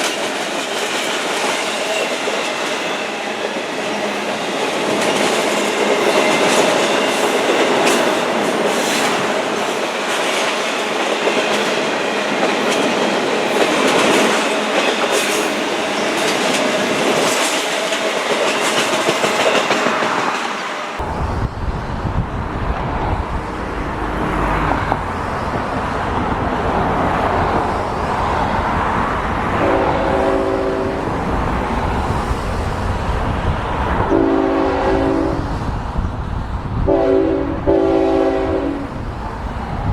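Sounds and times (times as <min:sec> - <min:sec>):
train wheels clicking over rail joints: 0:00.0 - 0:21.6
multi-tone locomotive horn: 0:29.4 - 0:31.1, 0:34.1 - 0:35.6, 0:36.8 - 0:38.9.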